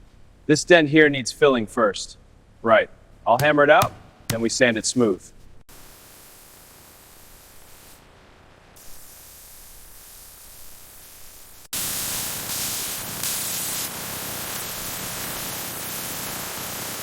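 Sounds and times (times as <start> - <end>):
compressed air spray hissing: 5.8 - 8.0, 8.8 - 17.0.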